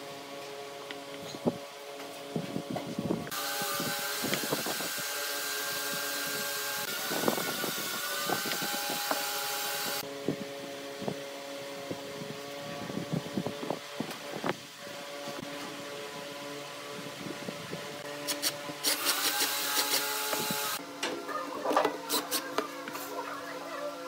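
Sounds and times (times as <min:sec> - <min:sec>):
wood lathe motor humming: 0:03.3 - 0:10.0.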